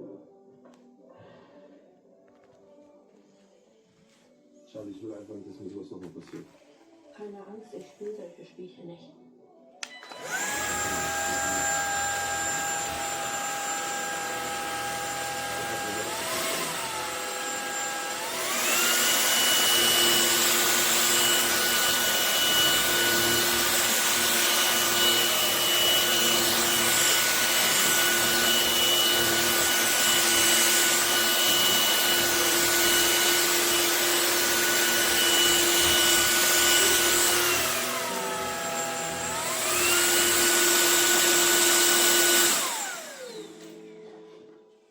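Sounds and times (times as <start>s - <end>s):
vacuum cleaner motor whine: 9.8s - 44.6s.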